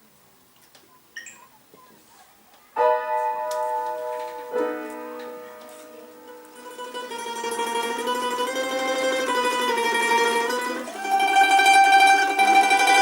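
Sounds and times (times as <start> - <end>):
piano chords ringing: 2.8 - 8.4.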